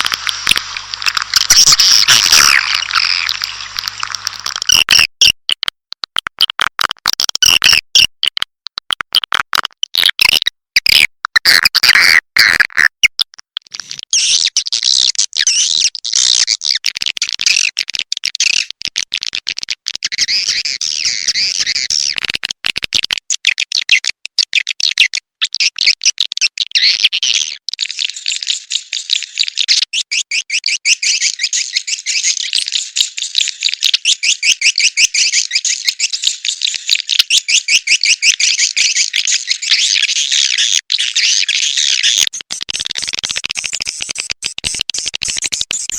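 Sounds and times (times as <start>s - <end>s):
recorded bird chirping: 0.0s - 4.8s, 30.0s - 45.9s.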